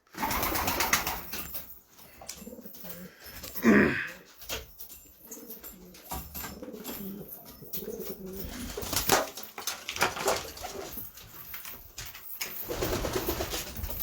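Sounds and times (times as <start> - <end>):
pigeons cooing: 2.0 - 9.2.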